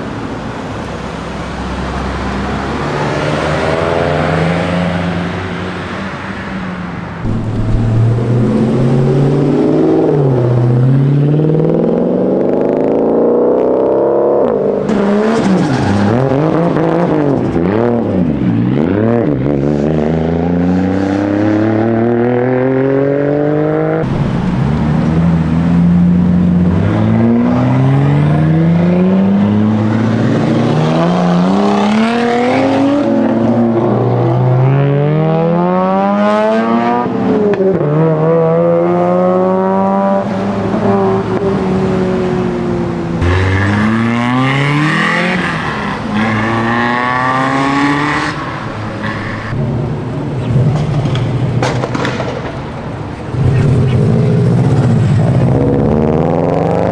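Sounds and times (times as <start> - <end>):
car engines revving and accelerating: 0.0 - 56.9.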